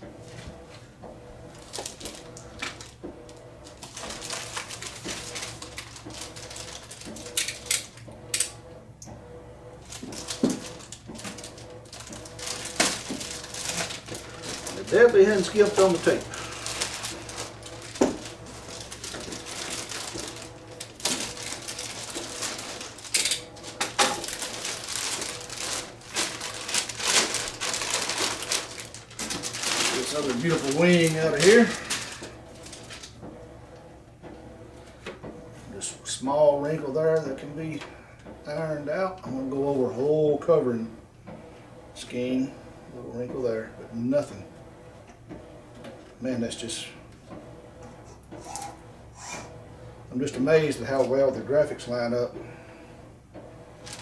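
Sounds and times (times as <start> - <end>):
plastic wrap crackling: 1.5 - 8.5, 9.8 - 33.2, 53.8 - 54.0
packing tape pulled off: 10.0 - 33.2.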